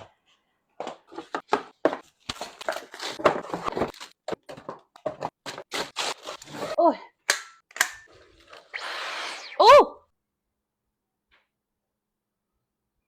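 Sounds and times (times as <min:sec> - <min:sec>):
plastic parts and packaging handled: 0:00.8 - 0:06.8.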